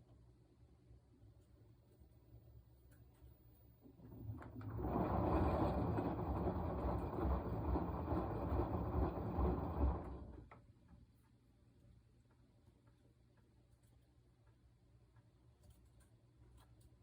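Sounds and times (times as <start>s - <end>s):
washing machine drum turning: 3.8s - 10.5s.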